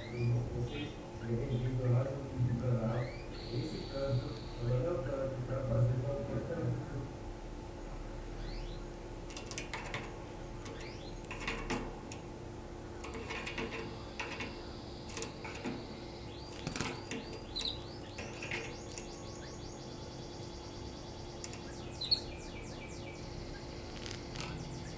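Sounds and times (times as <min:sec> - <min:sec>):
steady low hum: 0:00.0 - 0:24.9
canary chirping and trilling: 0:08.4 - 0:12.0, 0:13.0 - 0:24.9
sharp clicks: 0:21.4 - 0:22.2.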